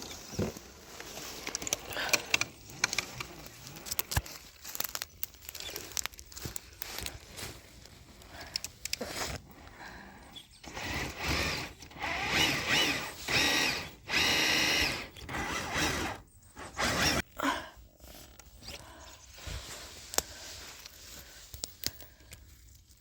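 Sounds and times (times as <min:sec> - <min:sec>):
electric motor whining: 0:10.6 - 0:17.2.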